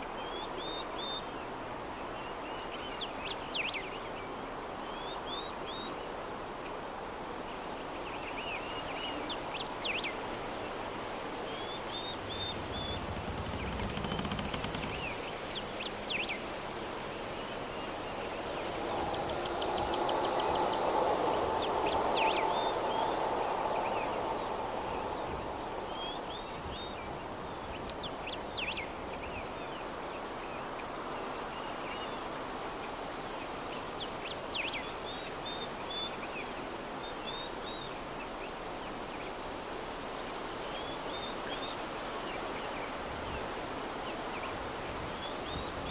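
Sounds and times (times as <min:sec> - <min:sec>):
soft breeze: 0:00.0 - 0:45.9
small birds chirping: 0:11.2 - 0:16.5.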